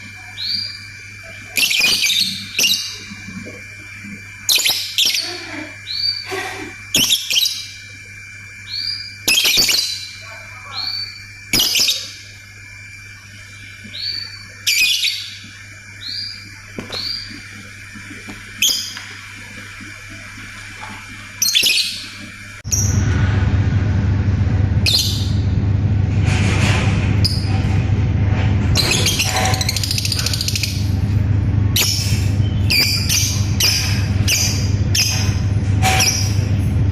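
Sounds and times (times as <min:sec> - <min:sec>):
loud low hum: 0:00.0 - 0:36.9
lovebird chirping: 0:00.3 - 0:03.1, 0:07.0 - 0:07.8, 0:08.6 - 0:12.2, 0:13.4 - 0:17.4, 0:21.4 - 0:22.2.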